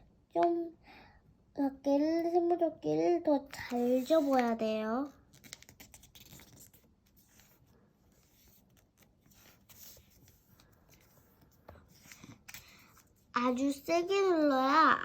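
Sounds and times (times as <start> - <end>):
paper being folded and creased: 3.5 - 13.7
paper crinkles: 5.2 - 13.2.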